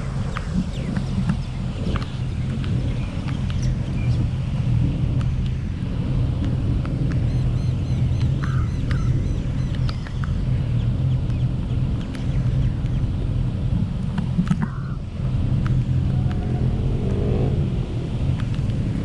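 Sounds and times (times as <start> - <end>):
car road and engine rumble: 0.0 - 19.0
light ticks: 5.1 - 5.6, 6.4 - 10.4, 11.2 - 13.0, 18.3 - 18.9.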